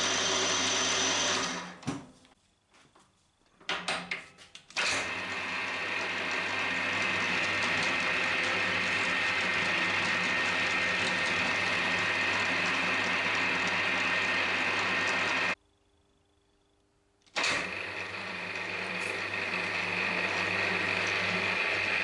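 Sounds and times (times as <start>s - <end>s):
drill boring into aluminium: 0.0s - 1.7s, 4.8s - 15.6s, 17.4s - 22.0s
mill-drill running with gear whine: 0.0s - 1.7s, 4.8s - 15.6s, 17.4s - 22.0s.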